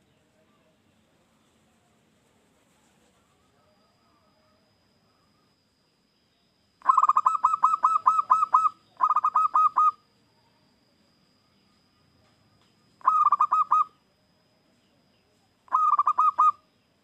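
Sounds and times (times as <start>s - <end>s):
dove cooing: 6.8s - 10.0s, 13.0s - 14.0s, 15.7s - 16.6s.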